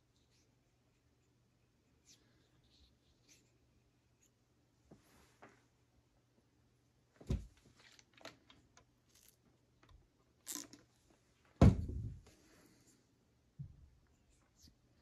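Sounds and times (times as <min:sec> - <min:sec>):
handling clicks and rustles: 0:07.2 - 0:11.2
dull thud: 0:11.6 - 0:12.2.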